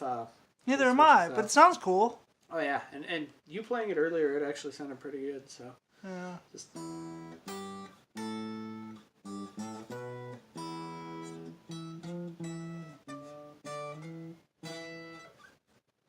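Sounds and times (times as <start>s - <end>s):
electric guitar strummed chords: 6.8s - 15.2s.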